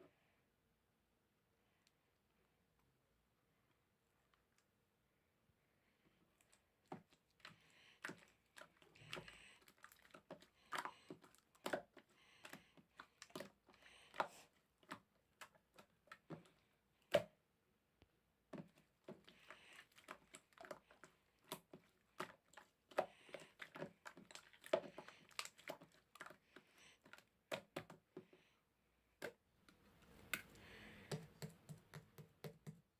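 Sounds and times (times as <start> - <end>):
slime squishing: 6.4 - 17.4, 18.5 - 28.4.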